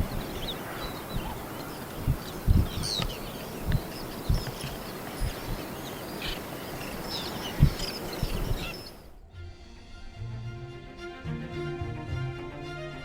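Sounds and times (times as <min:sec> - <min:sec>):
birds chirping and whistling: 0:00.0 - 0:09.2
steady outdoor hiss: 0:00.0 - 0:13.0
low thumps: 0:01.2 - 0:05.7.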